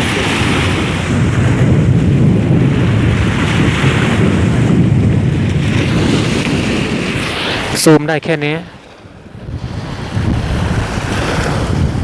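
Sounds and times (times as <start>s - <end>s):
sea waves washing: 0.0s - 12.0s
wind buffeting microphone: 0.0s - 12.0s.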